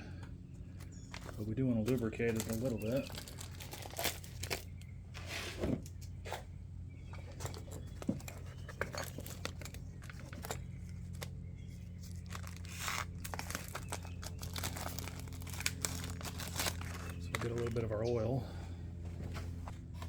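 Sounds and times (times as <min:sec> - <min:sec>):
low hum: 0:00.0 - 0:20.0
material crinkling and rustling: 0:01.1 - 0:04.9, 0:11.9 - 0:17.9.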